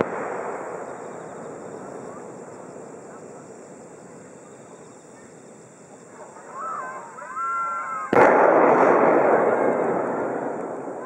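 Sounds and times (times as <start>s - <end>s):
firework boom: 0.0s - 4.2s, 8.1s - 11.0s
crowd exclaiming: 6.4s - 8.2s.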